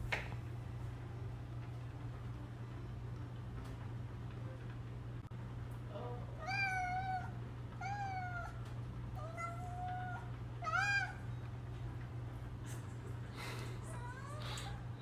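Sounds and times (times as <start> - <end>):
cat meowing: 6.4 - 11.4.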